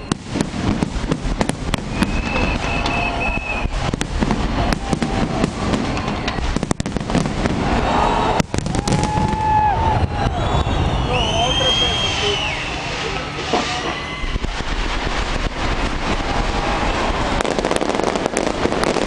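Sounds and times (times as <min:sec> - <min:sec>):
fireworks cracks and bangs: 0:00.0 - 0:19.0
high whistling tones: 0:01.9 - 0:03.8, 0:10.2 - 0:14.5.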